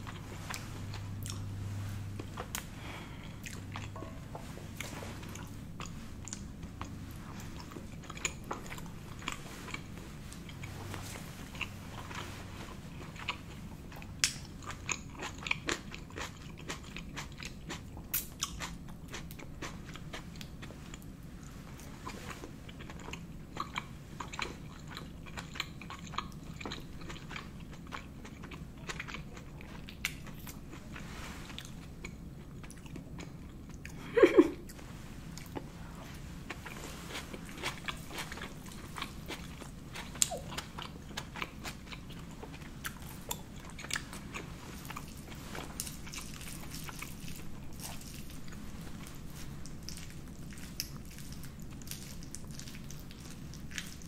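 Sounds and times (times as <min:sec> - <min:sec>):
low hum: 0:00.0 - 0:14.6
wet chewing: 0:34.7 - 0:54.0.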